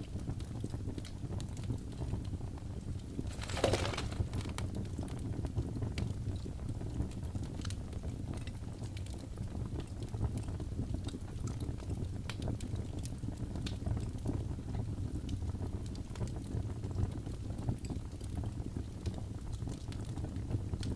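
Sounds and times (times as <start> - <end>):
fire pops and snaps: 3.2 - 5.2
low rumble of flames: 4.1 - 20.9.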